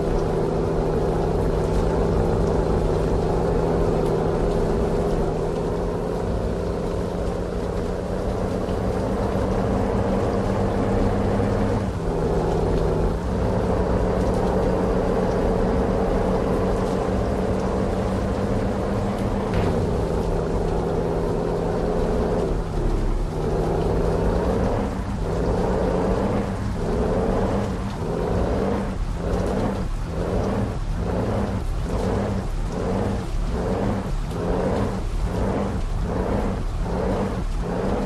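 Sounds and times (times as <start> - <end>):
heavy truck engine droning: 0.0 - 38.0.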